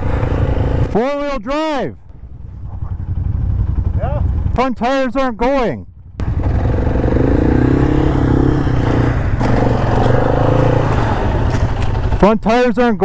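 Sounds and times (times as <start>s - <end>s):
atv engine revving: 0.0s - 1.0s, 6.1s - 12.3s.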